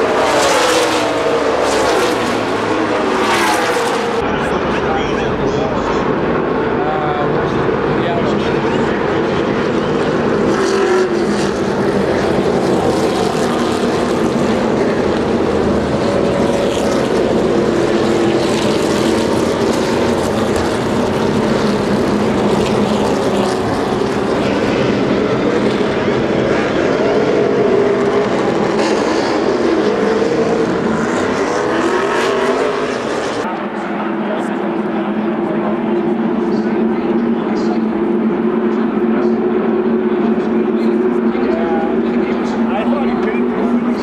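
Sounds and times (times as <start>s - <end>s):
race car engines droning: 0.0s - 44.0s.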